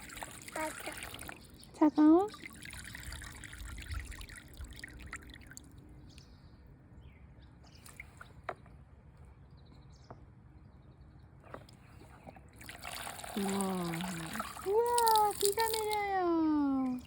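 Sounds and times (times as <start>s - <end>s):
small water drips: 0.0s - 6.4s, 12.6s - 17.0s
faint water trickling: 0.0s - 6.6s, 11.6s - 17.0s.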